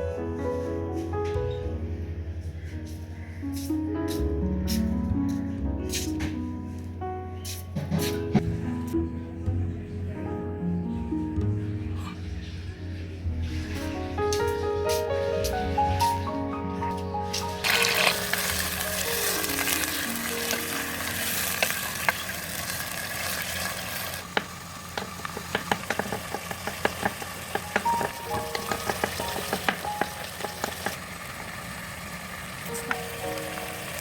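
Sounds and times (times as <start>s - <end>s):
food sizzling in oil: 17.6s - 26.8s, 27.4s - 31.5s
utensil tapping against pan: 24.4s - 31.0s.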